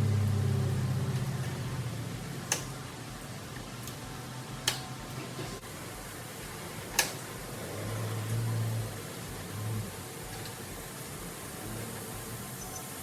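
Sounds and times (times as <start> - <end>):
car engine idling: 0.0 - 13.0
sharp clicks: 2.5 - 2.8.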